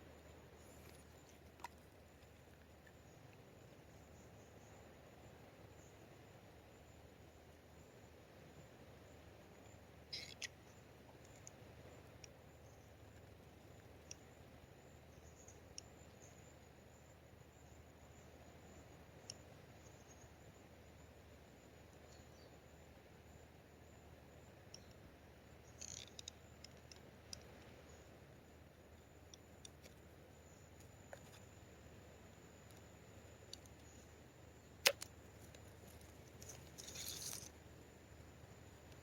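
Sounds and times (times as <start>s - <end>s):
low steady hiss: 0.0s - 39.0s
faint scattered clicks: 9.6s - 14.3s, 24.6s - 28.1s, 29.0s - 31.6s, 32.4s - 34.1s, 34.8s - 37.6s.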